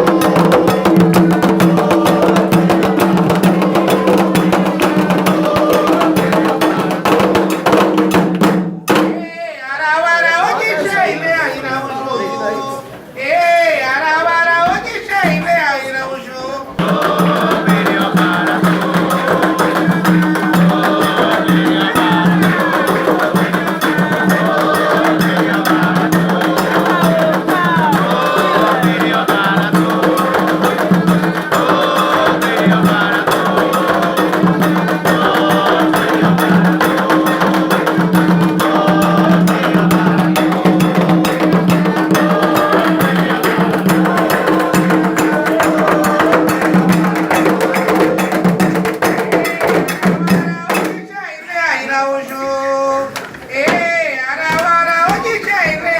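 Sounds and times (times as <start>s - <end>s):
fast drum percussion: 0.0s - 9.2s, 16.8s - 51.1s
voices singing: 0.0s - 55.9s
clacking wood-block or bell: 16.8s - 51.0s.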